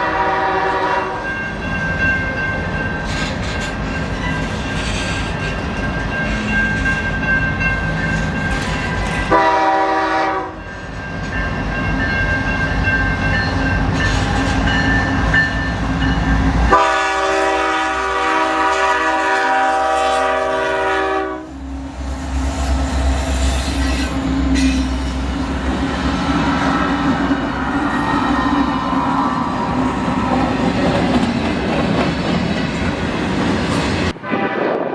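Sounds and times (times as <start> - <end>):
train air horn blasts: 0.0 - 1.3, 9.3 - 10.7, 16.6 - 25.4, 34.2 - 34.9
diesel locomotive running: 0.0 - 34.6
rail clatter: 0.2 - 17.6, 22.5 - 34.9.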